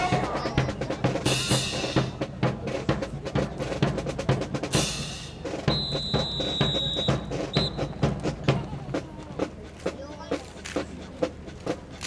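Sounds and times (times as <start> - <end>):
snare and bass drum cadence: 0.0 - 9.6.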